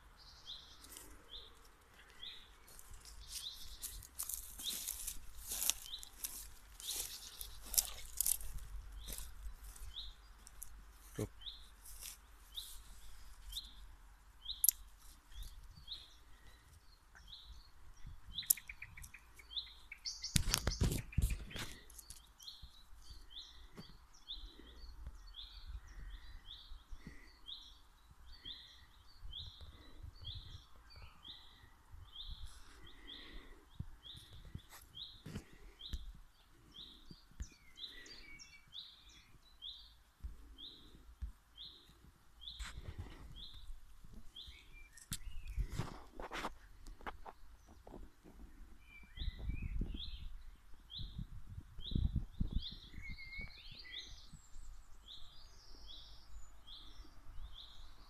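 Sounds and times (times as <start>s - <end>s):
songbird chirping: 0.0s - 58.0s
wind noise on microphone: 17.5s - 19.1s, 20.2s - 21.8s, 29.2s - 31.2s, 31.8s - 32.7s, 45.1s - 54.9s.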